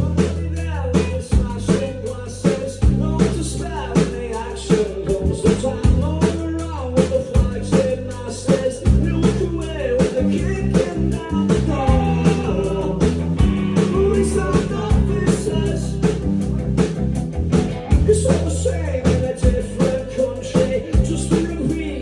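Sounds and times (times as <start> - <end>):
person singing: 0.0 - 16.6
bass guitar: 0.0 - 22.0
drum kit beat: 0.0 - 22.0
electric guitar: 10.5 - 22.0.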